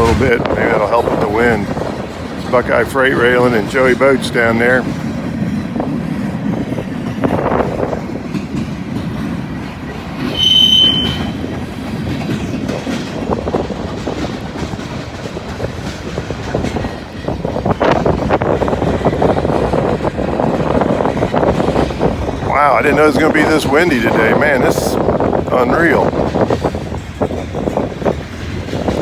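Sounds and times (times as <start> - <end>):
freight train rumbling past: 0.0 - 29.0
wheels clacking over rail joints: 0.0 - 29.0
wheel squeal: 10.2 - 11.6.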